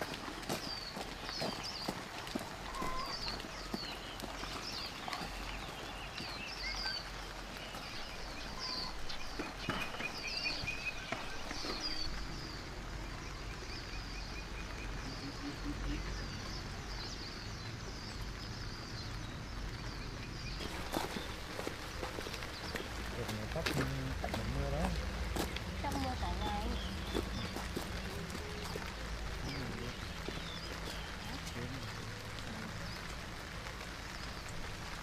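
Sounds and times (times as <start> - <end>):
high chirping calls: 0.0 - 12.7, 19.8 - 33.0
heavy rain falling: 0.0 - 35.0.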